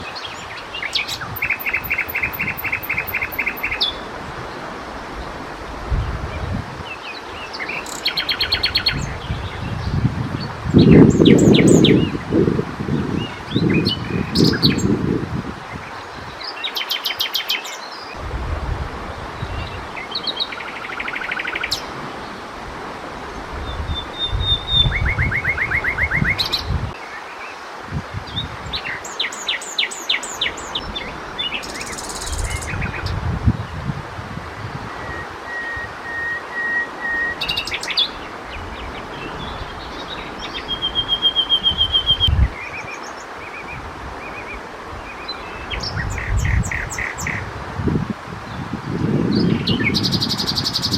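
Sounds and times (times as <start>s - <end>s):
nightingale singing: 0.0s - 4.1s, 6.9s - 12.3s, 13.1s - 15.0s, 19.4s - 22.4s, 23.4s - 27.0s, 28.3s - 33.2s, 34.8s - 43.7s, 49.3s - 50.9s.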